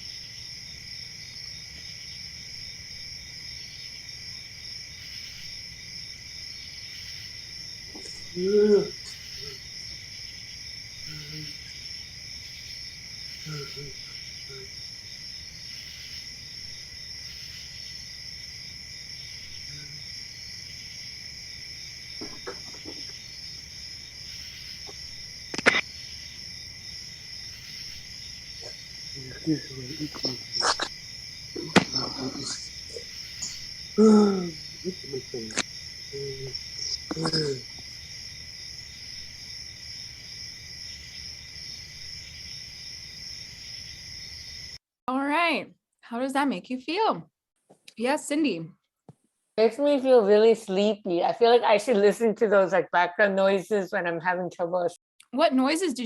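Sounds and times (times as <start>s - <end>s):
crickets chirping: 0.0s - 44.8s
sharp click: 25.5s - 25.8s.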